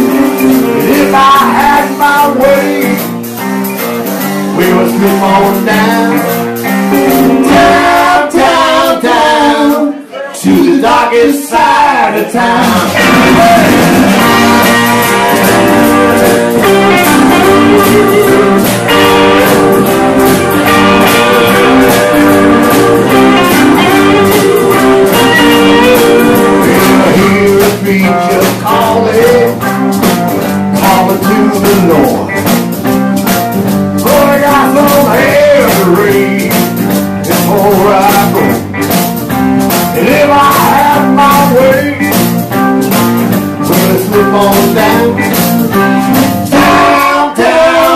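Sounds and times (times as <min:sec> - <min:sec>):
steady drum beat: 0:00.0 - 0:09.1, 0:12.4 - 0:47.9
electric guitar: 0:00.0 - 0:10.1, 0:12.0 - 0:47.9.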